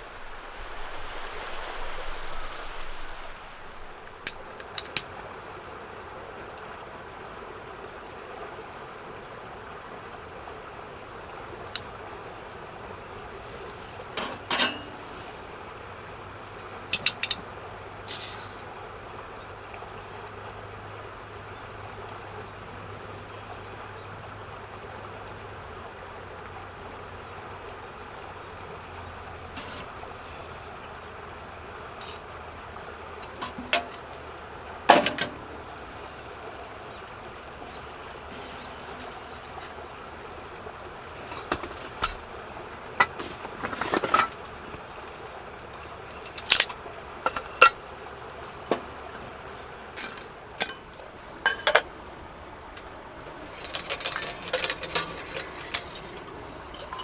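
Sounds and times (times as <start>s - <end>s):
low background hiss and hum: 0.0s - 57.0s
cookware clinking and knocking: 14.2s - 15.4s, 16.9s - 17.4s, 29.4s - 29.9s, 33.1s - 35.6s, 46.2s - 47.8s, 49.9s - 51.9s, 53.2s - 57.0s.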